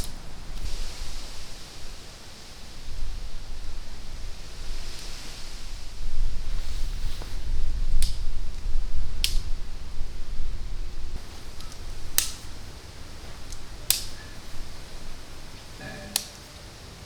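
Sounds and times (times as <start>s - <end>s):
loud sharp cracks: 11.2s - 16.5s.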